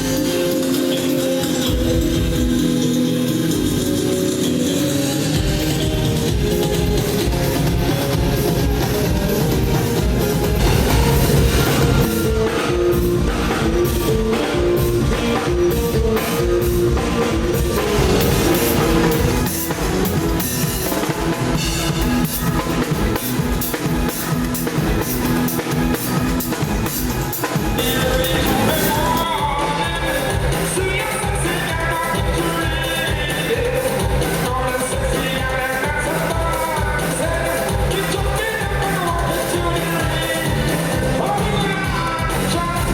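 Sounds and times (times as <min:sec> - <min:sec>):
live rock band: 0:00.0 - 0:42.9
bass drum beat: 0:05.4 - 0:42.9.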